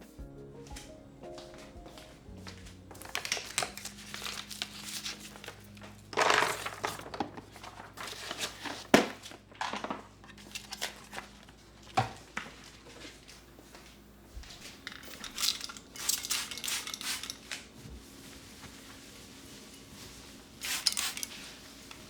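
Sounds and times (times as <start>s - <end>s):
crinkling and rustling: 0.7s - 16.4s.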